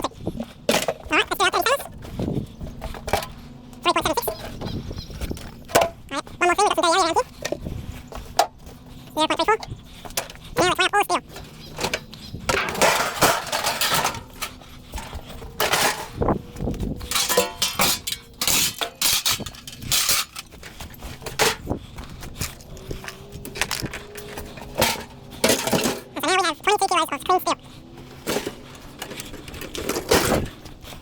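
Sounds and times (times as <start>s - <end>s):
scrap metal clattering: 11.3s - 26.2s, 28.0s - 31.0s.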